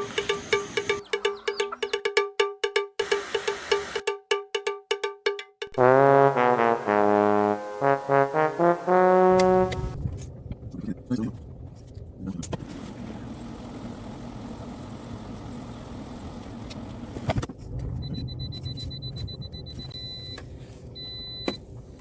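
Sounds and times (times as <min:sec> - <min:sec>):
car engine rumble inside cabin: 0:09.8 - 0:21.0.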